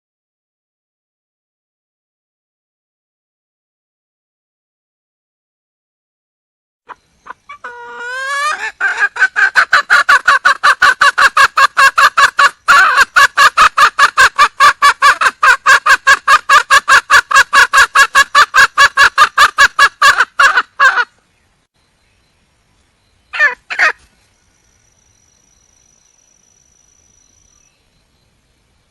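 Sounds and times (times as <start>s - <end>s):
hen calling: 6.9s - 21.2s, 23.3s - 24.1s.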